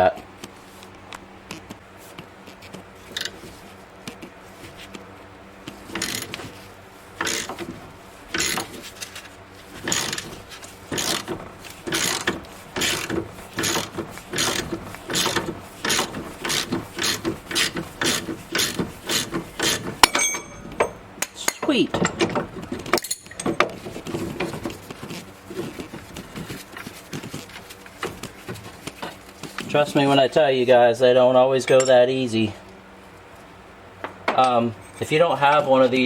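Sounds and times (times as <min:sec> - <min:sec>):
ratchet wrench clicking: 0:06.0 - 0:06.4, 0:07.2 - 0:07.6, 0:08.4 - 0:08.7, 0:09.8 - 0:10.3, 0:10.9 - 0:20.4.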